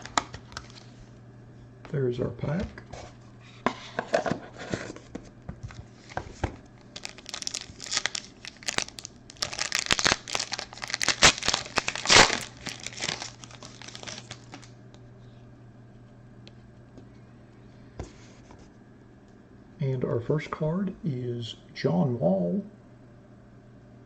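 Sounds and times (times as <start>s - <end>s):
card pack wrapper tearing: 0.0s - 0.9s, 6.9s - 14.7s.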